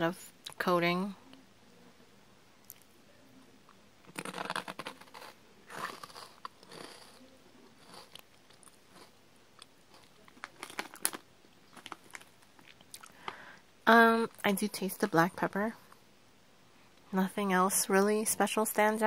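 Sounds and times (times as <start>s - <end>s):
person crunching a snack: 4.1s - 13.4s.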